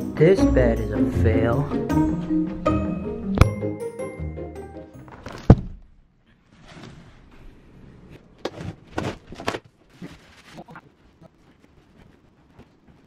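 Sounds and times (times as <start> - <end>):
cardboard tearing and knocking: 5.1 - 5.8, 8.4 - 10.6
cardboard and tape rustling: 8.4 - 13.0.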